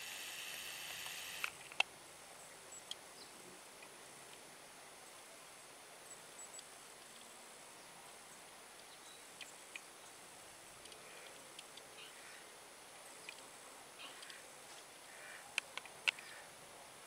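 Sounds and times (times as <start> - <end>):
small birds chirping: 6.0 - 10.2, 10.8 - 14.4, 15.1 - 16.5.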